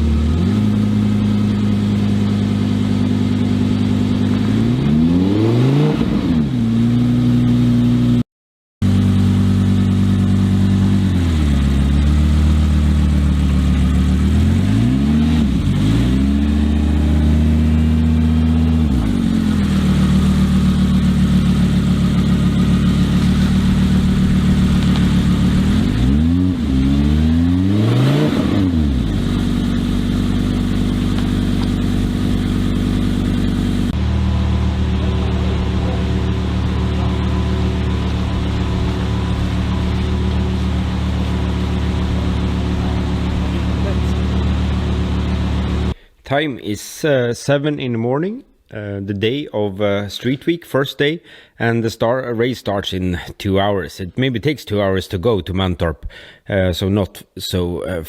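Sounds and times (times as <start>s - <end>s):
race car engine throttle blips: 0.0s - 8.2s, 8.8s - 46.0s.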